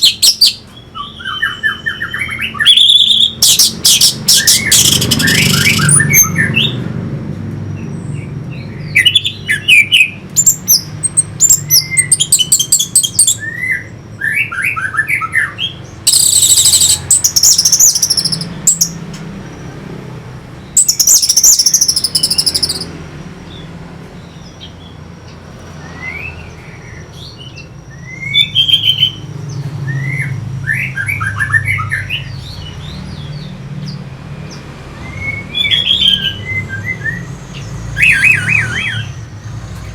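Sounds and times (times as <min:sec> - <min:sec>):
bird singing whistled phrases: 0:00.0 - 0:06.8, 0:08.9 - 0:19.0, 0:20.8 - 0:22.9, 0:25.8 - 0:29.2, 0:35.0 - 0:39.3
harsh high bird calls: 0:00.0 - 0:06.9, 0:07.8 - 0:39.9.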